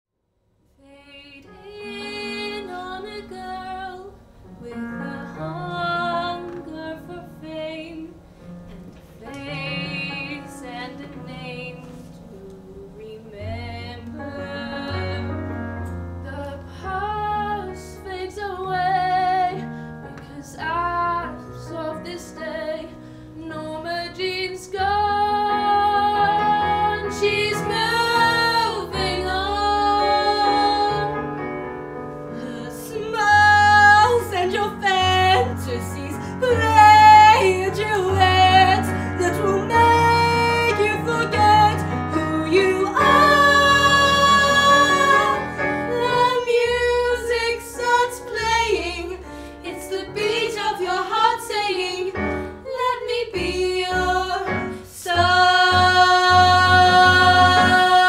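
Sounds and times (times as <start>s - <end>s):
women singing: 0.8s - 8.2s, 9.1s - 31.4s, 32.3s - 58.0s
instrumental accompaniment: 25.4s - 52.7s.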